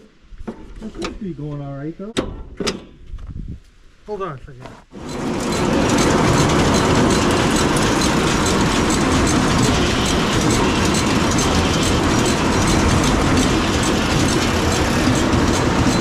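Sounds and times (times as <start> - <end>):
feed cart mechanical clatter: 5.0 - 16.0.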